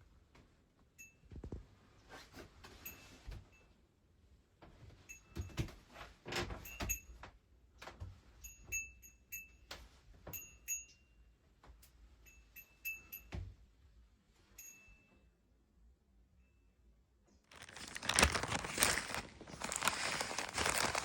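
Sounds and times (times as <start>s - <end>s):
soft handling sounds: 17.5s - 21.0s.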